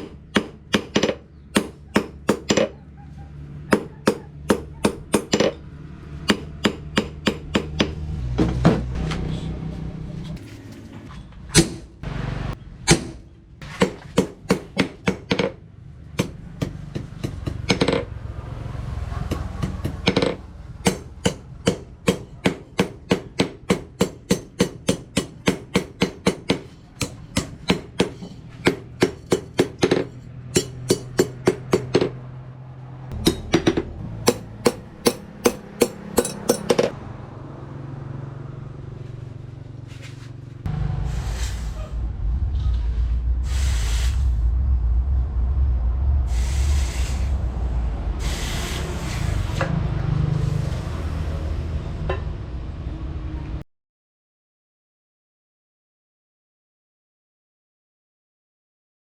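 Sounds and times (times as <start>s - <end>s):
hammer ringing on metal: 0.0s - 2.7s, 3.7s - 5.6s, 30.5s - 31.9s, 34.3s - 36.9s.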